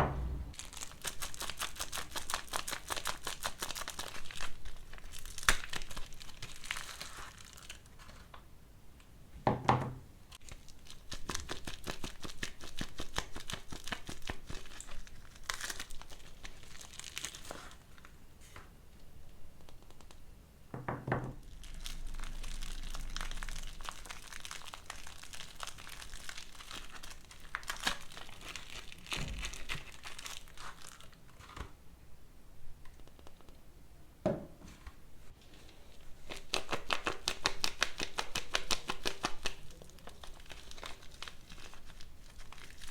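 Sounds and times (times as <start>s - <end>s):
wrapper crinkling and tearing: 0.5s - 8.4s, 10.4s - 18.2s, 21.4s - 31.7s, 35.5s - 42.9s.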